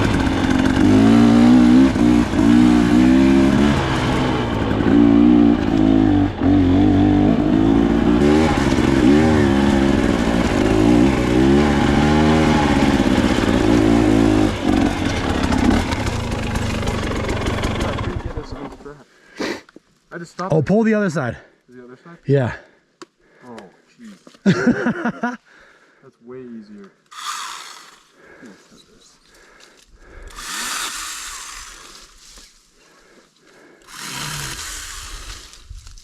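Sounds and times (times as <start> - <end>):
dirt bike engine revving: 0.0 - 18.8, 30.3 - 32.2, 33.9 - 35.6.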